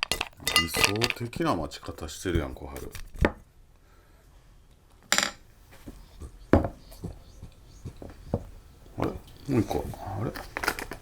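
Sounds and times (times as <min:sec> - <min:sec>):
dishes and utensils clinking: 0:00.0 - 0:02.0.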